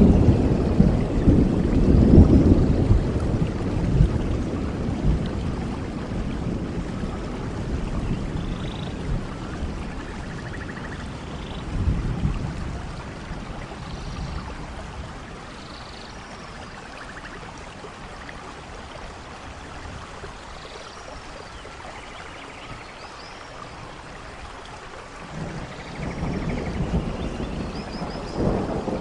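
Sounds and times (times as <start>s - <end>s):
thunder rumbling: 0.0s - 15.6s, 25.2s - 29.0s
steady rain: 0.0s - 29.0s.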